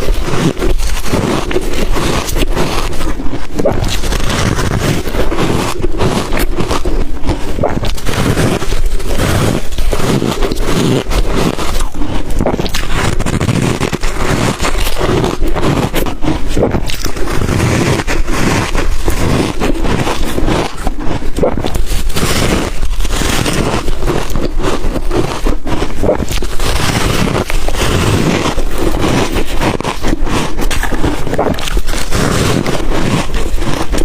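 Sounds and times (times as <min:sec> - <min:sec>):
biting and crunching ice: 0:00.0 - 0:34.0.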